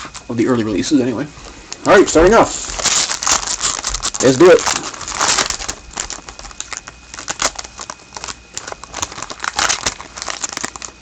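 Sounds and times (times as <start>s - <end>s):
card pack wrapper crinkling and tearing: 1.7s - 11.0s.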